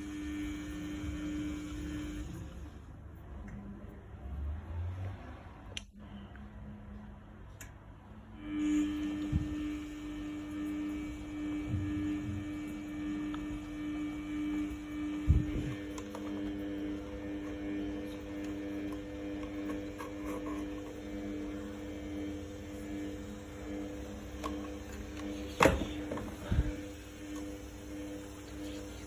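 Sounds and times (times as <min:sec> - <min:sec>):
washing machine humming: 0:00.0 - 0:05.0, 0:08.4 - 0:29.0
washing machine thumps: 0:25.6 - 0:26.8.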